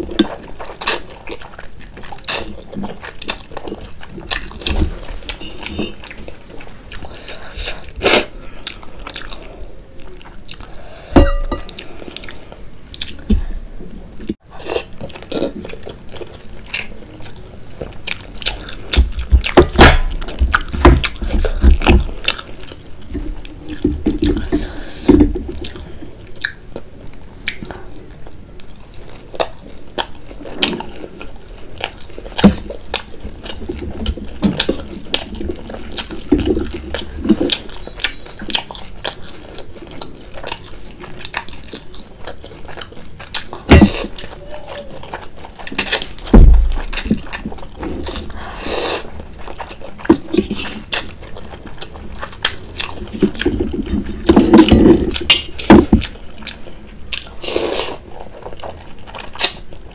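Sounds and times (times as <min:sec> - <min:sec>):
wet chewing and mouth smacks: 0:00.1 - 0:59.9
cutlery knocking on dishes: 0:11.2 - 0:11.7.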